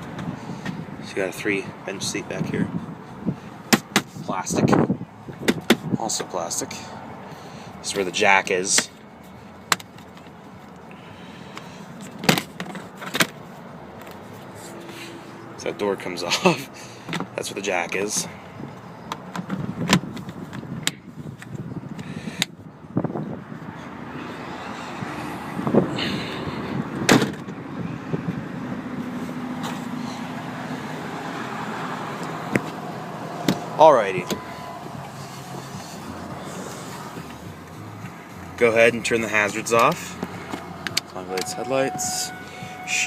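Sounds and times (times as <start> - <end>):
car engine idling: 29.9 - 43.0.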